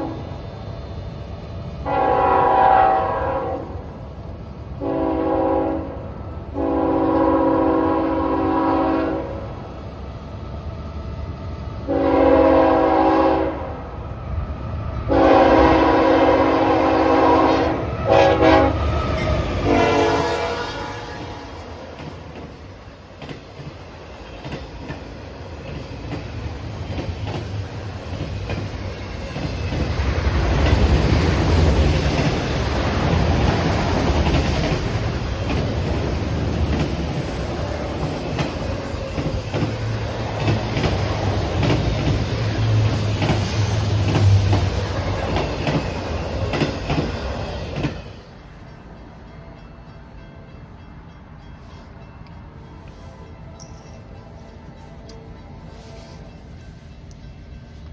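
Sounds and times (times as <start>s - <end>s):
train rumbling past: 0.0s - 57.9s
wheels clacking over rail joints: 21.9s - 37.1s, 37.9s - 48.2s.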